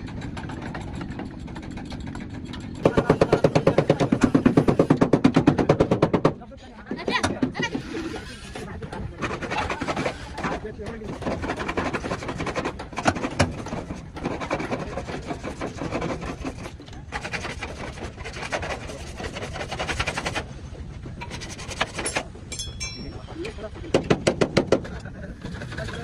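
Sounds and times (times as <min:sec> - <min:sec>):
abrasive rubbing on car body panel: 0:07.0 - 0:20.5.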